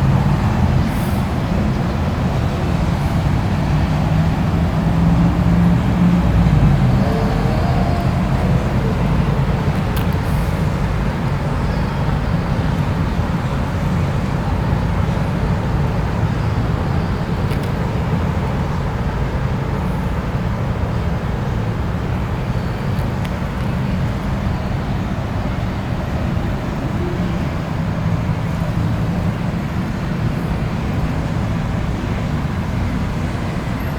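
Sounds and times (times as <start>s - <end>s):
low engine rumble: 0.0s - 16.2s.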